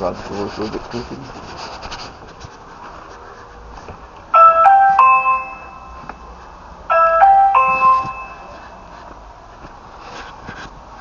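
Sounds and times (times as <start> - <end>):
doorbell chime tune: 4.4 - 6.1, 6.9 - 8.6.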